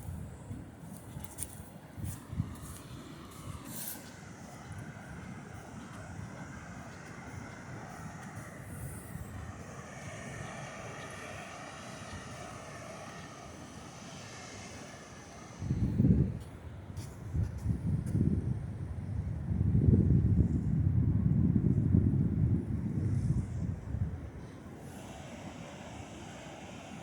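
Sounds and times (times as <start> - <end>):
distant engine drone: 1.8 - 16.9.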